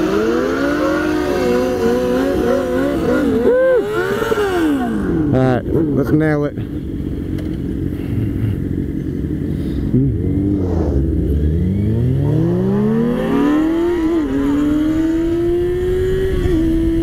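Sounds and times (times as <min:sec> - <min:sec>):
motorcycle engine accelerating: 0:00.0 - 0:17.0
wind rush: 0:10.3 - 0:17.0.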